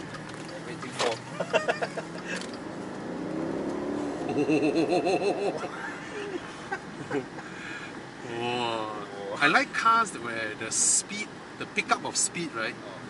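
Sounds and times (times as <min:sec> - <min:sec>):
car engine accelerating: 0:00.0 - 0:08.6.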